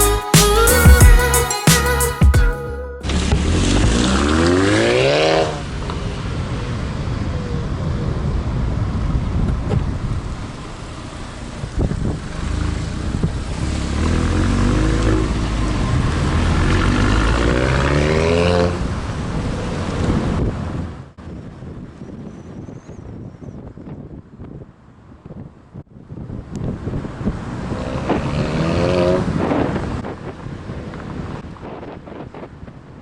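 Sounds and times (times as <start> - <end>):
car engine revving: 3.0 - 5.9, 12.2 - 18.9.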